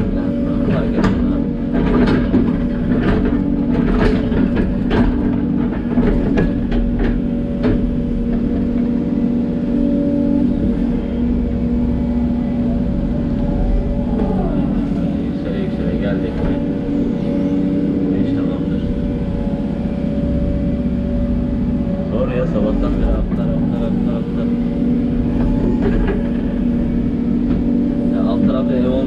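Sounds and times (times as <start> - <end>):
sharp knocks and clatters: 0.0 - 9.4, 25.2 - 28.8
excavator diesel engine running: 0.0 - 29.0.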